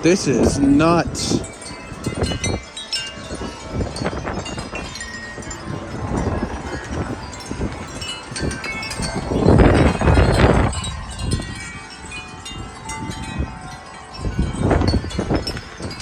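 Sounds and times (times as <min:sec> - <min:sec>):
metal wind chimes ringing: 0:00.0 - 0:16.0
wind buffeting microphone: 0:00.0 - 0:16.0.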